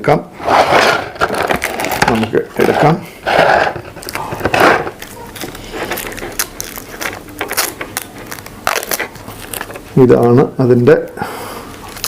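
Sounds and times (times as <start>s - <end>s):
plastic packaging crinkling: 1.1s - 3.0s, 3.7s - 10.3s.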